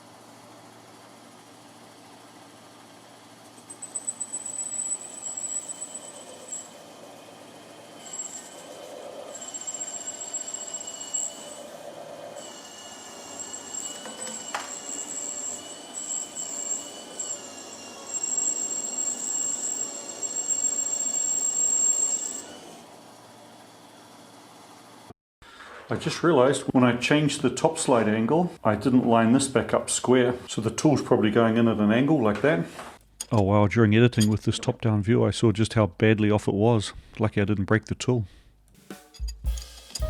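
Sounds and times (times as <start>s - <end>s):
lathe tool squealing on metal: 3.6s - 22.8s.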